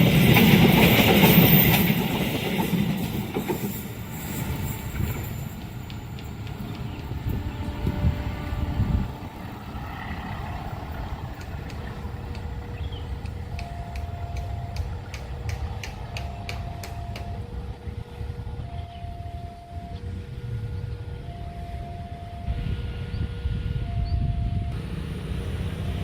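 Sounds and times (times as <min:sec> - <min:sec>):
train rumbling: 0:00.0 - 0:26.0
sharp ticks: 0:11.3 - 0:17.4
two-tone warning signal: 0:12.7 - 0:15.2, 0:16.0 - 0:24.9, 0:25.7 - 0:26.0.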